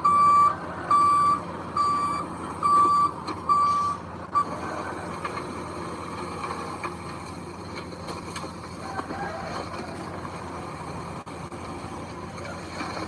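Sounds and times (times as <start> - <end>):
truck reversing alarm beeps: 0.0 - 5.0
heavy machine engine running: 0.0 - 13.0.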